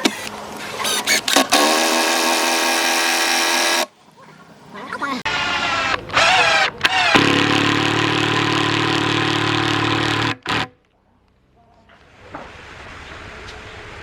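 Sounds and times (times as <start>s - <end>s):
power tool motor whining: 0.8s - 3.9s, 5.3s - 10.8s.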